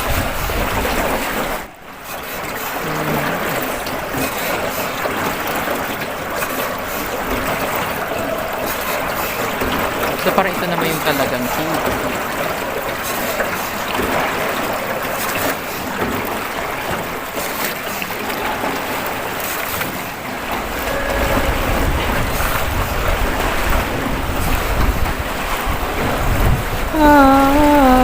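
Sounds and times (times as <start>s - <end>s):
water rushing: 0.0s - 28.0s
wind buffeting microphone: 20.4s - 27.0s.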